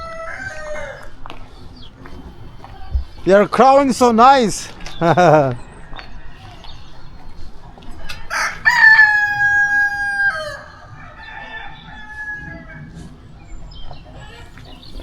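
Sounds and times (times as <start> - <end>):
faint rooster crow: 0.0 - 1.2, 8.3 - 13.0
rooster crowing: 0.0 - 1.2, 8.3 - 12.9.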